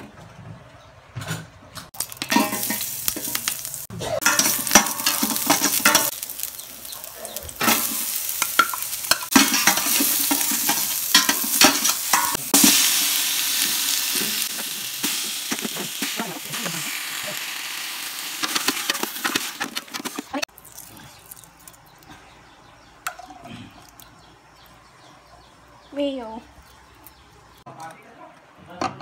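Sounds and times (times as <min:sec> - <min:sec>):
utensil scraping metal pot: 0:02.0 - 0:06.2, 0:07.4 - 0:12.9
vegetables sizzling in hot oil: 0:02.0 - 0:19.8.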